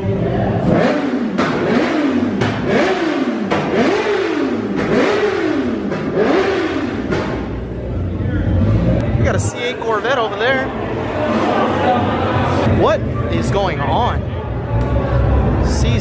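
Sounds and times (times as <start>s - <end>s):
exhaust bangs: 0.4s - 16.0s
car engine revving against limiter: 0.6s - 7.7s.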